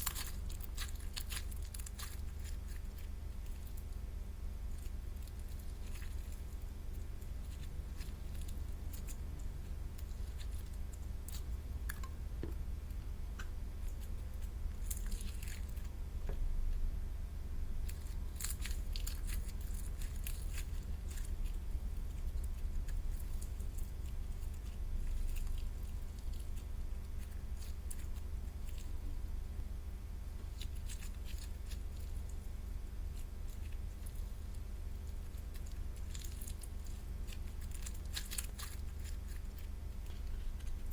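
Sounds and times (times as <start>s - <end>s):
steady low hum: 0.0s - 40.9s
slime squishing by hand: 30.4s - 40.9s.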